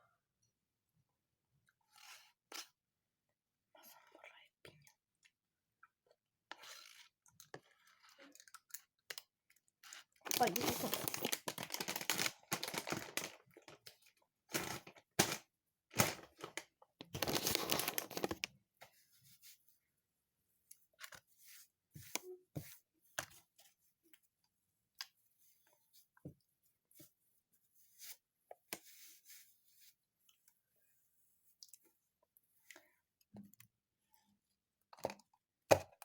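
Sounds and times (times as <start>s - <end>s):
packaging rustling and tearing: 10.3s - 13.8s, 14.5s - 18.5s.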